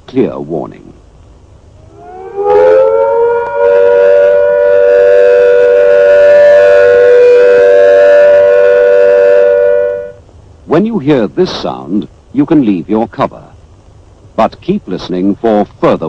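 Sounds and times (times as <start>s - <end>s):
air-raid siren: 1.8s - 10.2s.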